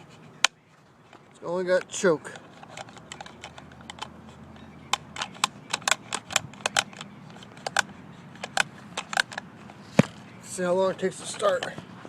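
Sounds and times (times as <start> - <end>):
chainsaw controls clicking: 2.6 - 4.2, 4.9 - 10.1.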